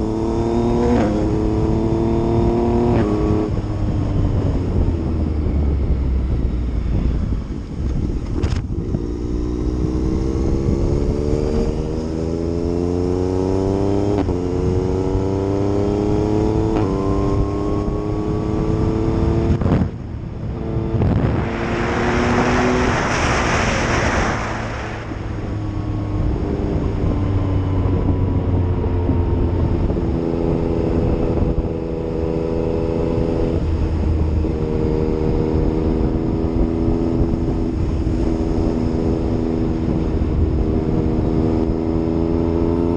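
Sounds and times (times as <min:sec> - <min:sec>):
motorcycle engine accelerating: 0:00.0 - 0:42.9
loud rushing hiss: 0:21.3 - 0:25.8.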